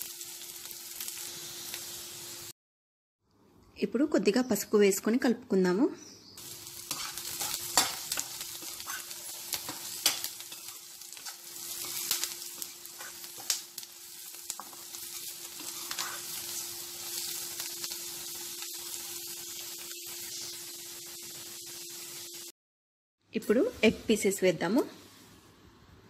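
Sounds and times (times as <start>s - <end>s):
food sizzling in hot oil: 0.0s - 2.5s, 6.4s - 22.5s
metal spatula scraping a pan: 6.8s - 13.5s, 15.6s - 16.5s.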